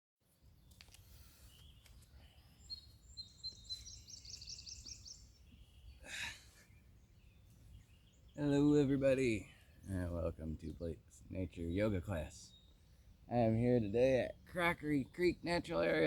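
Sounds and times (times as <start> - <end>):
songbird whistling: 2.6 - 8.5.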